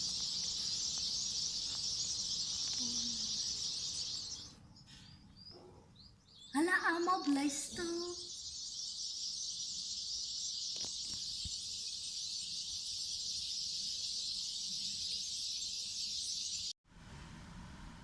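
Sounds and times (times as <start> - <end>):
shrill insect chorus: 0.0 - 4.6, 7.2 - 16.7.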